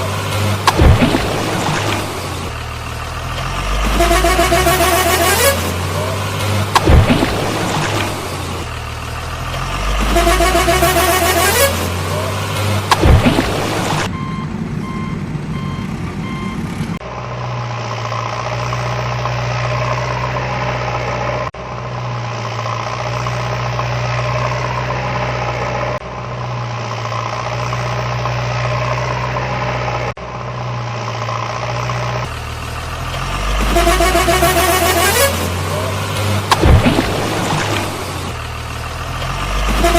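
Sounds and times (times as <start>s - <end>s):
vehicle engine idling: 0.0s - 19.0s, 29.8s - 39.9s
electronic beeps: 14.0s - 16.7s.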